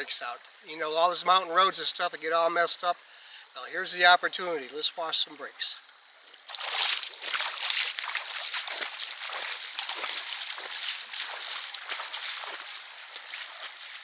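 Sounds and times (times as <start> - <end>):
water splashing around vehicle: 5.8 - 14.0.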